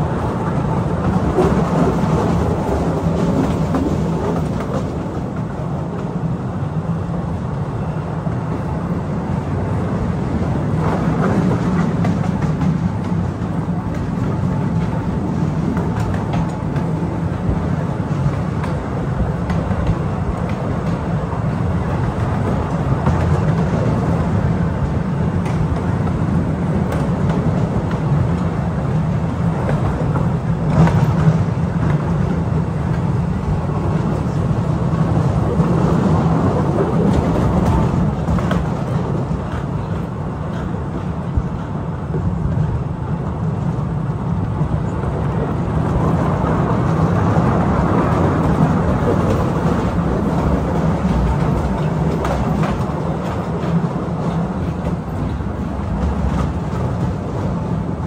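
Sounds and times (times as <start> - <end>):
train wheels rumbling on rails: 0.0 - 58.0
track clicks and knocks: 10.8 - 24.4, 44.4 - 57.6.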